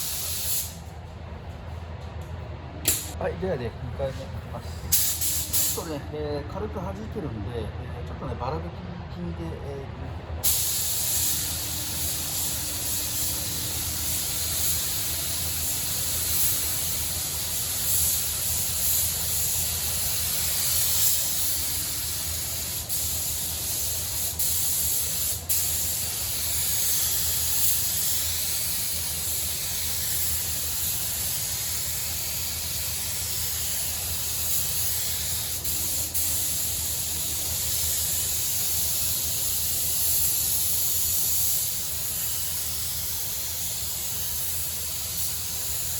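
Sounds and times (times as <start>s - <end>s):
spray gun hissing: 0.0s - 0.8s, 4.9s - 5.8s, 10.4s - 45.9s.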